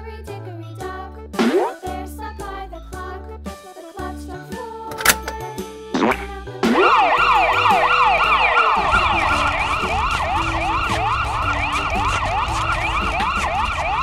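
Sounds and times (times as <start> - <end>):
children's background music: 0.0 - 13.1
electronic siren wailing: 6.8 - 14.0.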